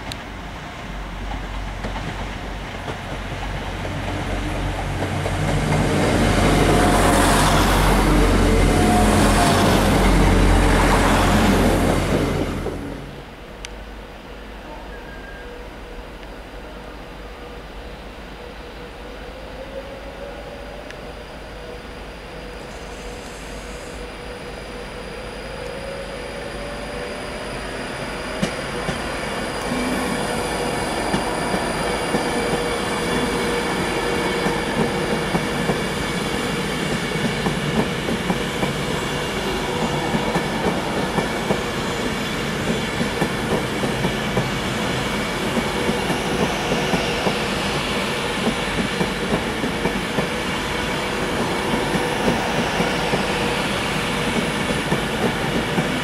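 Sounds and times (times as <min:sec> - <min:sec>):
train wheels rushing on rails: 0:00.0 - 0:14.2, 0:20.9 - 0:56.0
wheels clickety-clack: 0:01.2 - 0:06.8.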